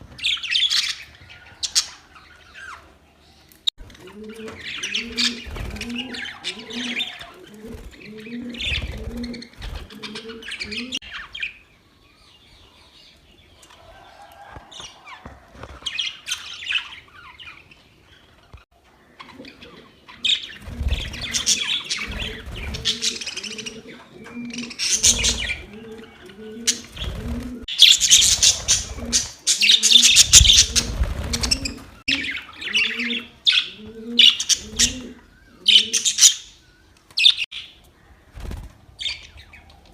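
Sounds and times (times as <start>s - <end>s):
budgerigars chirping and chattering: 19.2s - 27.1s, 27.7s - 36.6s.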